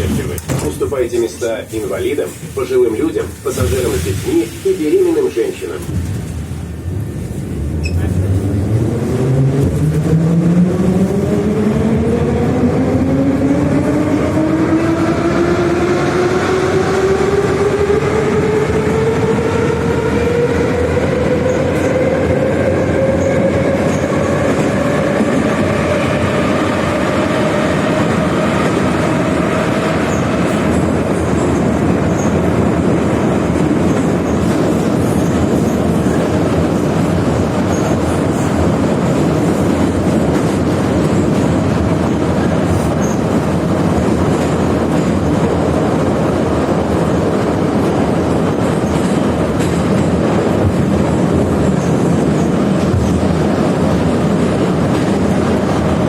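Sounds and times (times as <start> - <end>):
train wheels clattering on rails: 20.2 - 56.0.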